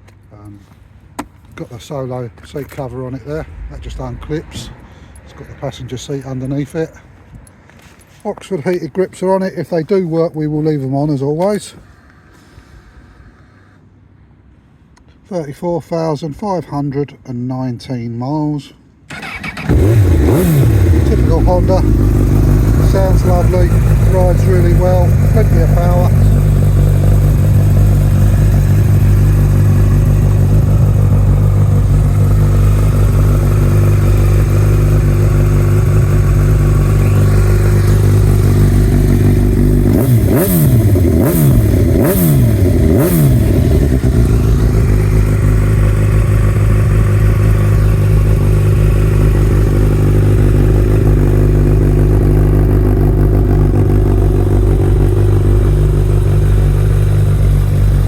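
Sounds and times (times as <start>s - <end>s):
motorcycle engine idling: 19.1s - 58.0s
motorcycle engine revving: 19.1s - 58.0s.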